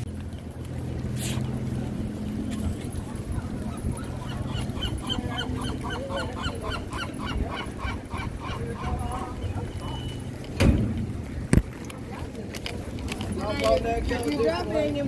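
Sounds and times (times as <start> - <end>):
low background rumble: 0.0 - 15.0
honking bird calls: 3.3 - 10.3.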